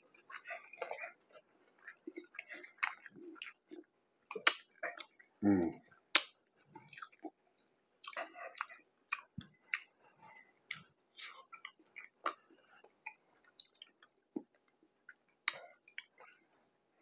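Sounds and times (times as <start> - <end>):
person chewing food: 0.0 - 17.0
wet mouth clicks and smacks: 6.1 - 7.1, 13.0 - 16.4.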